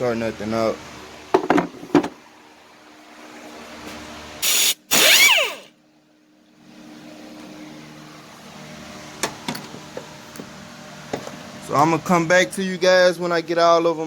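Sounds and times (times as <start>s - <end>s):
burst of hiss: 4.4s - 5.3s
power tool whining: 4.4s - 5.7s.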